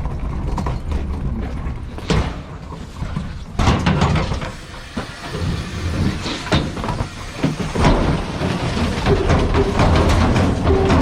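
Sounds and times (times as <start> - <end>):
garbage truck engine rumble: 0.0 - 11.0
metal clanks: 6.1 - 11.0.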